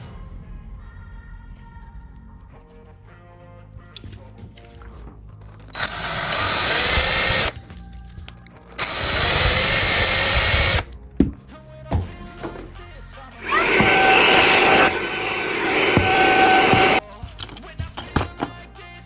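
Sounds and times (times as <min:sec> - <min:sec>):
small electric power tool whine: 0:05.8 - 0:07.5, 0:08.8 - 0:10.9, 0:13.4 - 0:17.0.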